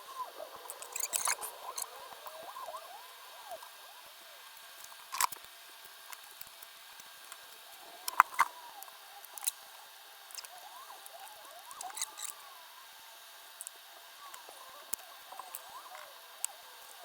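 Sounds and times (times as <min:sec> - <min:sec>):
squeaky chirps: 0:10.7 - 0:12.4.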